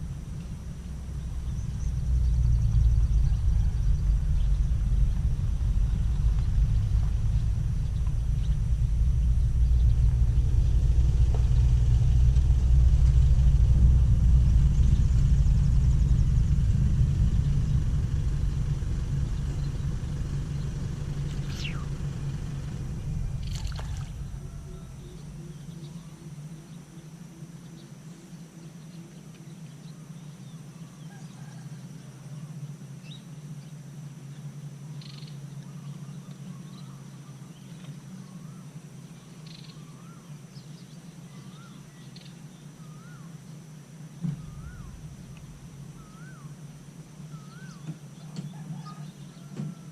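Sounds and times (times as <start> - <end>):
low rumble: 0.0 - 29.0, 44.2 - 47.8
croaking pulses: 16.5 - 27.0
bird calls: 19.2 - 31.6, 35.0 - 49.9.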